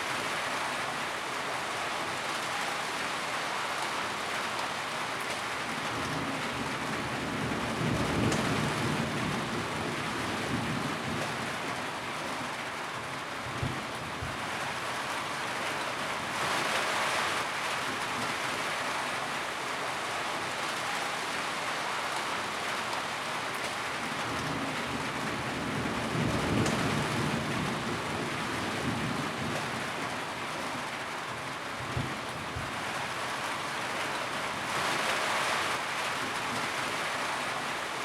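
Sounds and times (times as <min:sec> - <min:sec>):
rain on a tin roof: 0:00.0 - 0:38.0.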